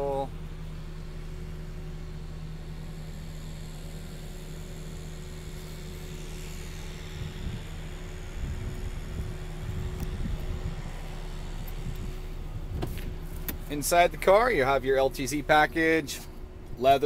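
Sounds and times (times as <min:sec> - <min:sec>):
vehicle engine idling: 0:00.0 - 0:17.0
irregular low rumbling: 0:06.8 - 0:17.0.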